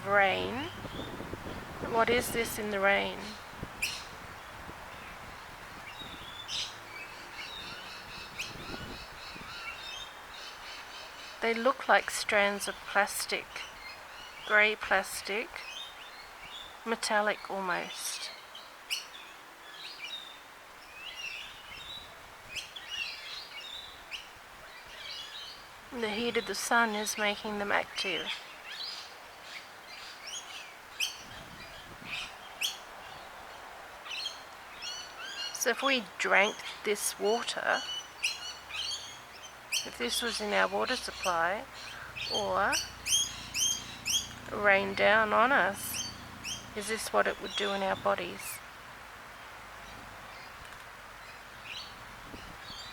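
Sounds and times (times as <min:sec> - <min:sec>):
birds chirping: 0:00.0 - 0:52.9
faint steady hiss: 0:00.0 - 0:52.9
birds chirping and whistling: 0:00.3 - 0:04.2, 0:05.0 - 0:11.4, 0:36.4 - 0:48.6
steady background noise: 0:25.6 - 0:52.9.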